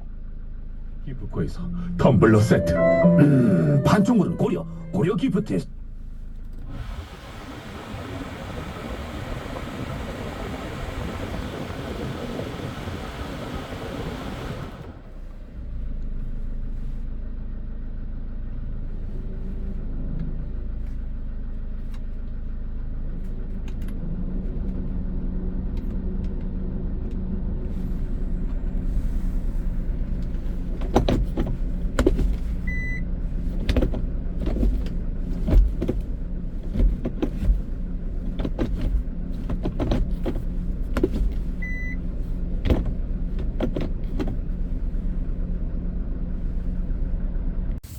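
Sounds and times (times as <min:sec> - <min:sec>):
diesel engine starting and idling: 0:00.0 - 0:47.9
short beeps: 0:02.0 - 0:05.2.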